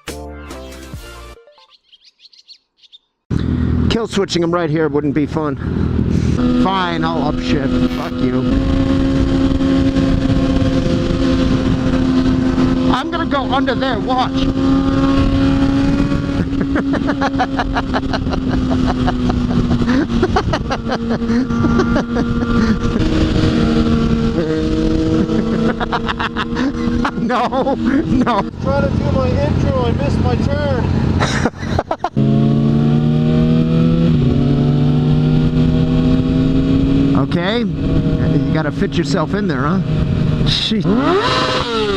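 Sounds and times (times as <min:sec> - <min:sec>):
motorcycle engine running: 0:03.3 - 0:41.9
wind noise on microphone: 0:07.7 - 0:12.9, 0:13.9 - 0:16.8, 0:17.8 - 0:25.7, 0:32.5 - 0:38.5, 0:39.8 - 0:41.9.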